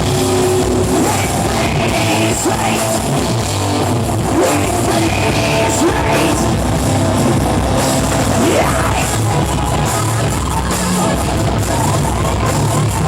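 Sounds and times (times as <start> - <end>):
bass guitar: 0.0 - 13.0
distorted electric guitar: 0.0 - 13.0
drum kit: 0.0 - 13.0
person singing: 0.8 - 3.0, 4.3 - 9.3.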